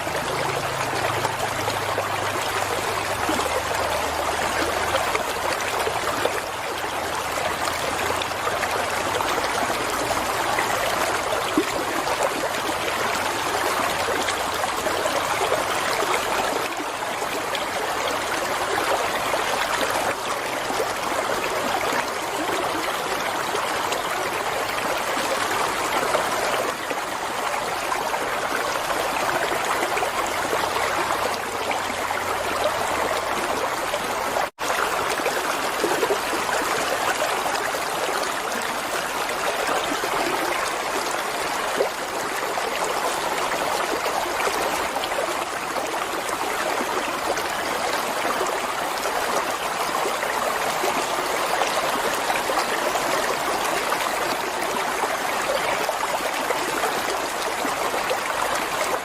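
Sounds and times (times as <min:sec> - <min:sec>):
flowing water: 0:00.0 - 0:59.0.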